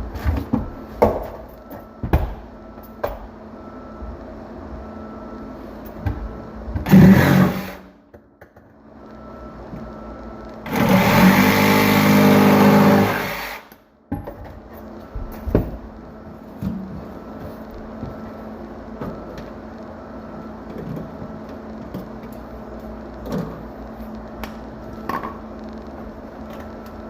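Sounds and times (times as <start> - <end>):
small power tool motor: 6.9 - 7.9, 10.7 - 13.7.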